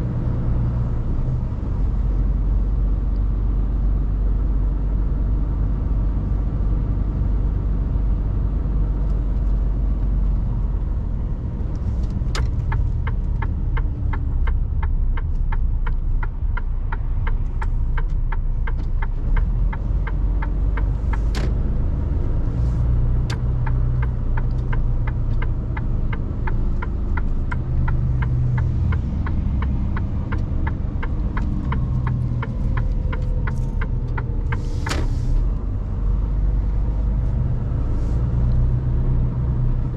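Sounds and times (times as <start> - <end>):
truck engine and road rumble: 0.0 - 39.9
turn indicator ticking: 11.6 - 38.6.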